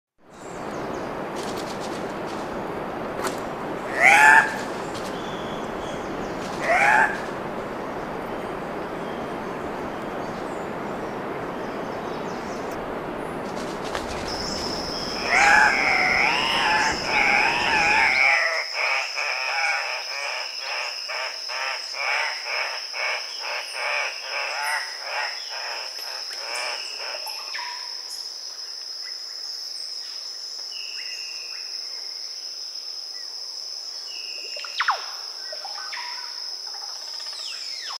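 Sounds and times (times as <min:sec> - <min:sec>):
high insect whine: 0:00.4 - 0:38.0
rushing hiss: 0:13.4 - 0:18.5
bird squawking: 0:15.0 - 0:18.4.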